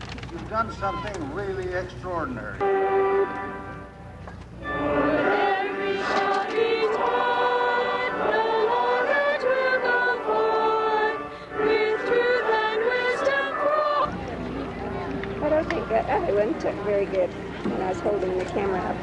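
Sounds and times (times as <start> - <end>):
choir singing a hymn: 4.6 - 14.7, 15.4 - 19.0.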